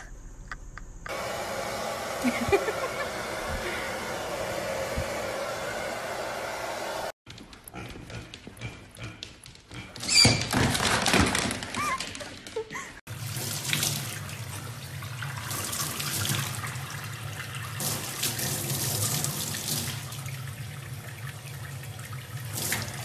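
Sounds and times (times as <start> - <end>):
tap water splashing into sink: 13.2 - 17.0.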